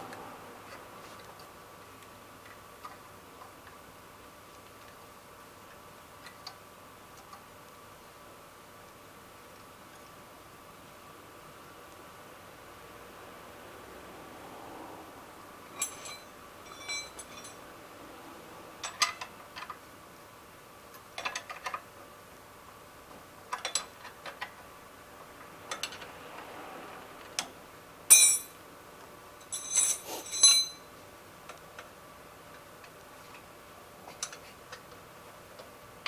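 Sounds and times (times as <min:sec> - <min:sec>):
metal tools clinking on engine parts: 0:15.7 - 0:17.7, 0:28.1 - 0:28.6, 0:29.4 - 0:30.9.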